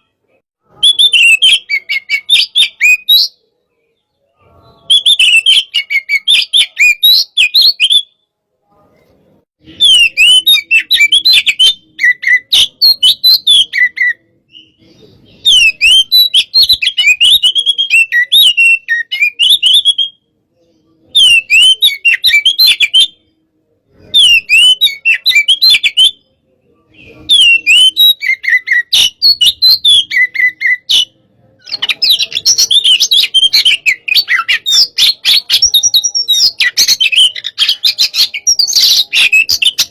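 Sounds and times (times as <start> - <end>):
bird singing rapid whistles and trills: 0.6 - 3.4, 4.4 - 8.2, 9.6 - 20.2, 21.0 - 23.2, 24.0 - 26.3, 26.9 - 39.9.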